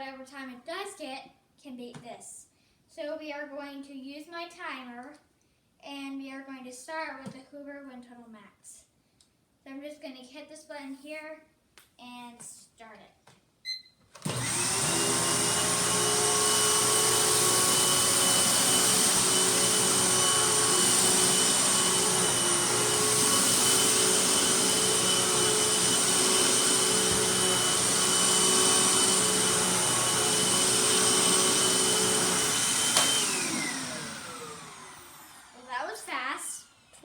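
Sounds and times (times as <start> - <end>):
upright vacuum cleaner whining: 14.1 - 36.0, 36.6 - 36.9.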